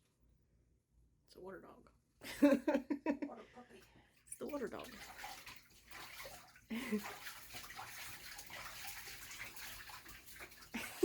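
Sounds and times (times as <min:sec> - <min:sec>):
water splashing in a bathtub: 0:04.2 - 0:11.0.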